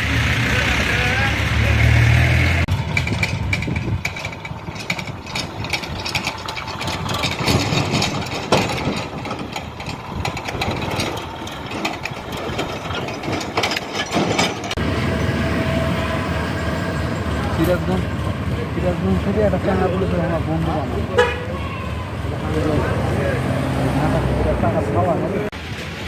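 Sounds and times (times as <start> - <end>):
tractor engine running: 0.0 - 23.4
clattering knocks: 2.7 - 14.8.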